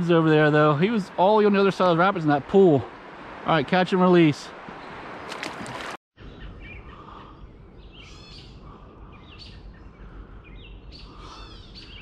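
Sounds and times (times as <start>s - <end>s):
low background rumble: 6.2s - 11.9s
birds chirping and whistling: 6.2s - 12.0s.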